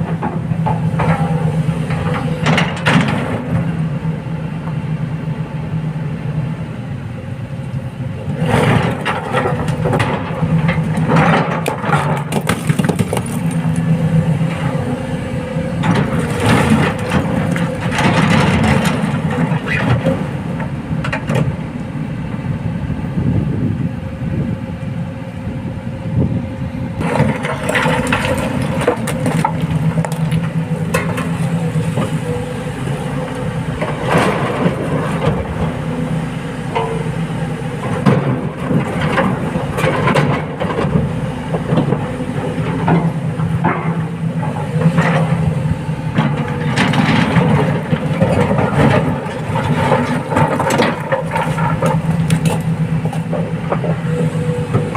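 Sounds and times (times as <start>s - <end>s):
excavator diesel engine running: 0.0s - 54.9s
rocks clattering into metal: 11.1s - 13.7s.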